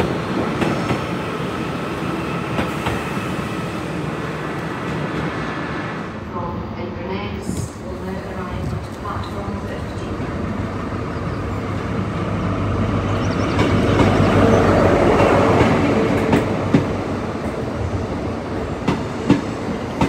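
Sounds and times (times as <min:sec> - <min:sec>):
diesel train engine hum: 0:00.0 - 0:20.0.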